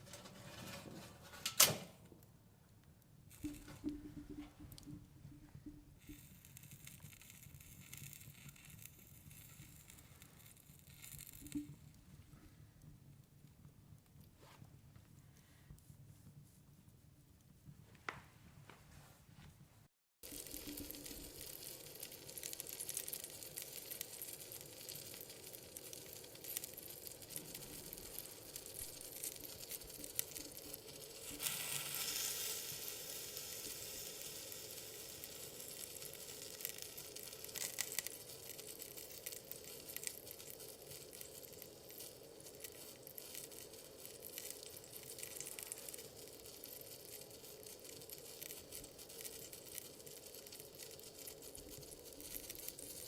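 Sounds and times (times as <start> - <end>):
wood fire crackling: 2.6 - 14.4, 20.2 - 53.0
chicken skewers sizzling on grill: 20.2 - 53.0.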